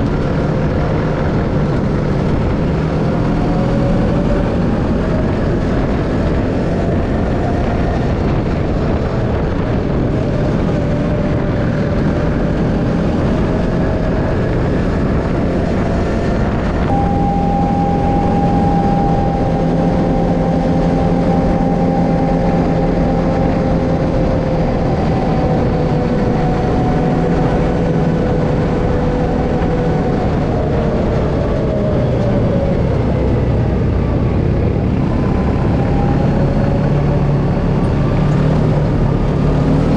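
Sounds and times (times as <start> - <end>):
vehicle engine cruising: 0.0 - 39.9.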